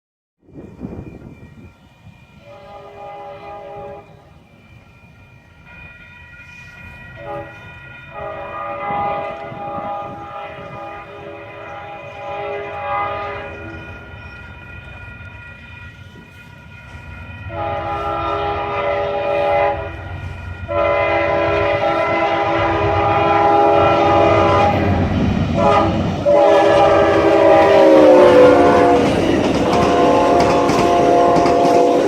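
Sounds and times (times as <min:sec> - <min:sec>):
train rumbling on rails: 0:00.4 - 0:32.0
train horn blasts: 0:02.0 - 0:04.3, 0:07.2 - 0:14.1, 0:17.4 - 0:32.0.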